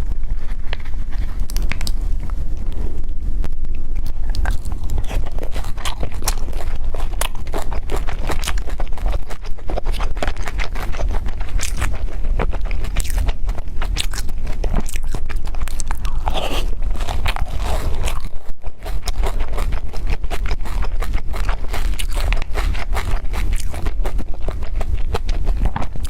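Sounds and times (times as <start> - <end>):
low steady hum: 0.0 - 26.0
wet chewing and mouth smacks: 3.7 - 26.0
utensil scraping a dish: 16.2 - 18.0.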